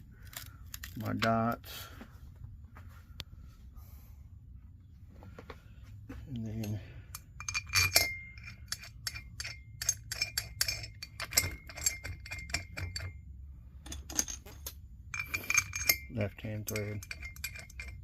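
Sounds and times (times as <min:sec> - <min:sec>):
metal parts clinking: 0:00.2 - 0:01.4, 0:06.5 - 0:13.2, 0:13.8 - 0:18.0.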